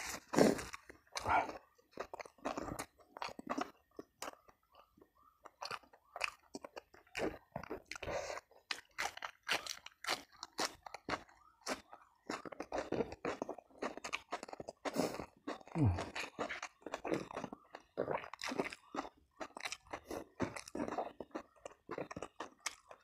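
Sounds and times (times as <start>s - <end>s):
person chewing crunchy food: 0.0s - 23.0s
wet mouth sounds: 13.9s - 19.1s.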